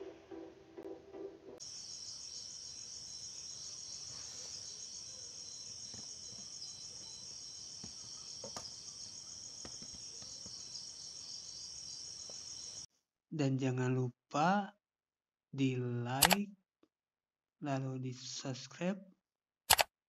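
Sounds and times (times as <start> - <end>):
crickets trilling: 1.6 - 12.9.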